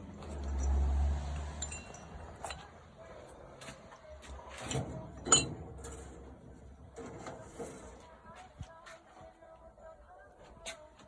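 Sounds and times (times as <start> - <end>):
small metal parts clinking: 1.6 - 2.6.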